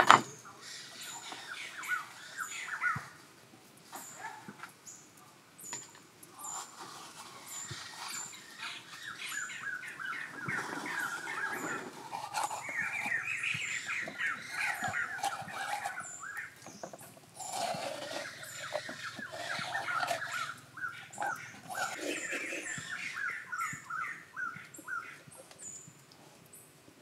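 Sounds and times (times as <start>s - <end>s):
birds chirping: 0.0s - 3.2s, 3.9s - 26.8s.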